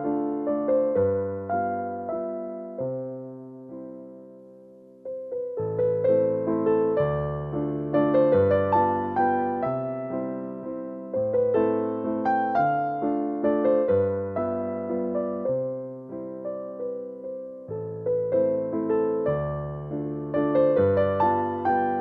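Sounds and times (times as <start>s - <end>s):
gentle electric piano melody: 0.0s - 22.0s.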